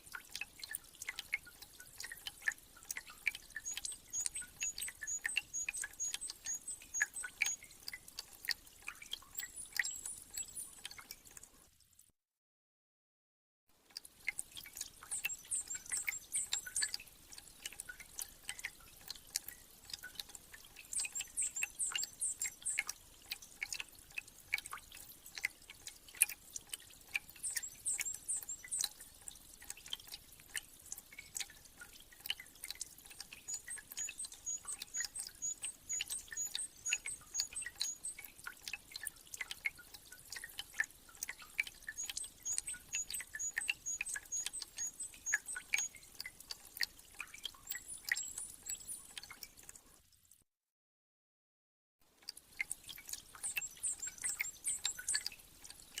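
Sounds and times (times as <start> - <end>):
meltwater dripping: 0.0 - 11.8, 13.8 - 50.1, 52.2 - 56.0
small birds twittering: 3.0 - 7.8, 15.0 - 17.0, 20.8 - 22.9, 27.4 - 28.9, 33.3 - 38.3, 41.9 - 46.1, 47.7 - 49.2, 53.3 - 55.3.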